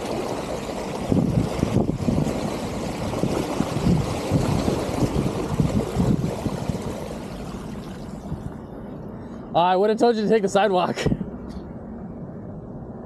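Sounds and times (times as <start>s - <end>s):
mountain bike riding rumble: 0.0s - 8.6s
wind buffeting microphone: 0.0s - 9.6s.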